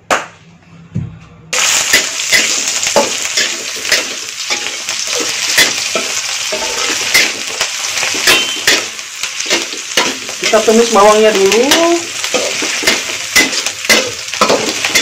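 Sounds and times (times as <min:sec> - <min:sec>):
onions sizzling in oil: 0:01.5 - 0:15.0
spatula scraping a pan: 0:02.0 - 0:10.6, 0:11.7 - 0:15.0.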